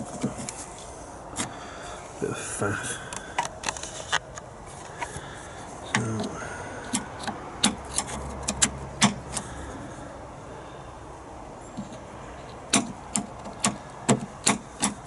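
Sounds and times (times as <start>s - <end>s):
metallic latch clicks and clacks: 5.9s - 9.4s, 11.8s - 15.0s.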